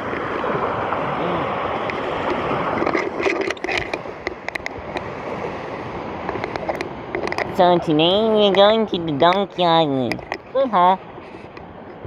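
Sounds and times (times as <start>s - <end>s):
water rushing around kayak: 0.0s - 12.0s
small sharp knocks and clicks: 2.8s - 5.1s, 6.2s - 7.5s, 10.1s - 10.5s.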